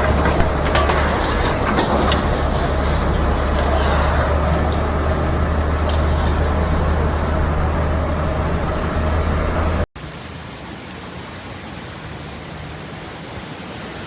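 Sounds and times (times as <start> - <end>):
low rumble: 0.0 - 10.2
heavy rain hissing: 0.0 - 14.0.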